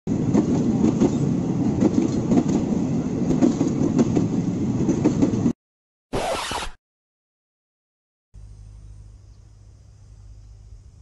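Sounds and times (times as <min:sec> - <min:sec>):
train rumbling on rails: 0:00.1 - 0:05.6.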